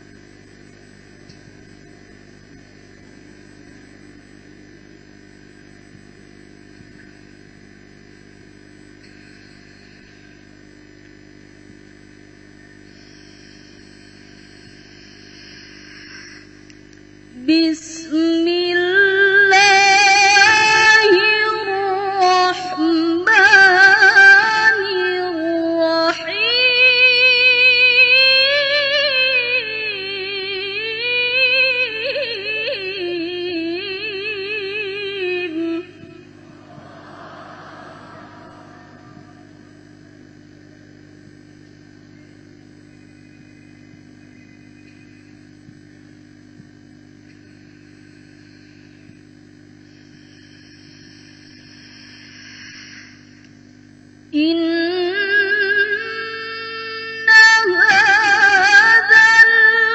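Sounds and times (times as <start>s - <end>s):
steady low hum: 0.0s - 59.9s
woman chanting recitation: 17.3s - 36.8s, 54.3s - 59.9s.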